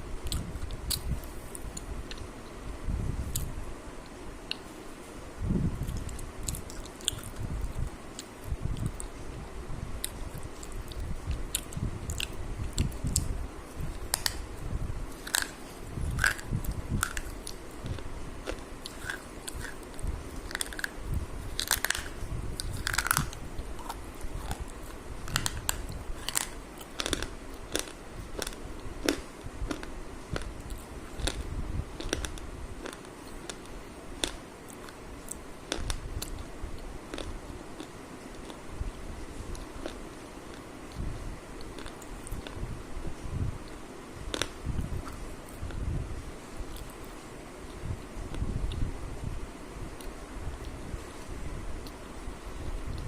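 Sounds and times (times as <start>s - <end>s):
person biting and chewing food: 0.2s - 2.3s, 5.8s - 9.1s, 10.0s - 36.5s, 37.1s - 38.6s
crunchy clicks: 10.0s - 14.4s, 21.6s - 31.4s.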